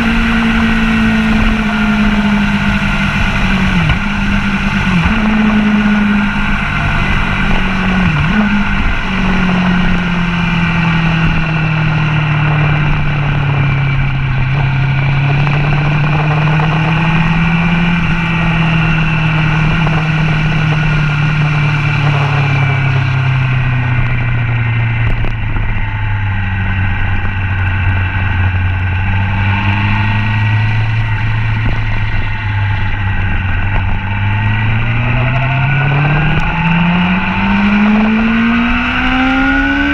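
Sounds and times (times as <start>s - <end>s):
sport motorcycle engine: 0.0s - 39.9s
wind rush: 0.0s - 39.9s.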